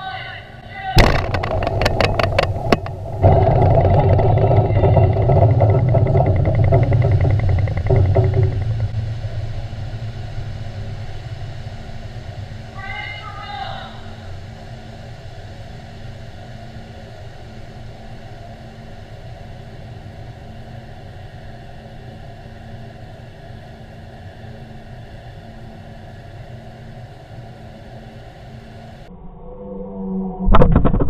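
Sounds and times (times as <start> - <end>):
constant hum tone: 0.0 - 31.0
machinery rumble: 0.0 - 31.0.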